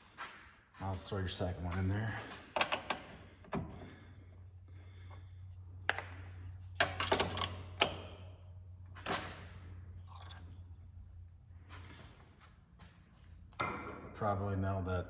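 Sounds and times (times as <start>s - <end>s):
steady low hum: 0.0s - 15.0s
metal tools clinking and knocking: 6.8s - 8.2s.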